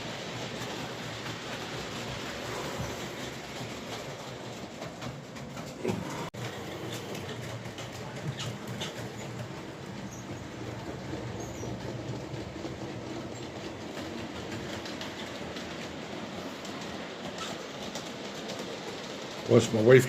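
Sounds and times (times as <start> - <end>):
wheels clicking over rails: 0.0 - 20.0.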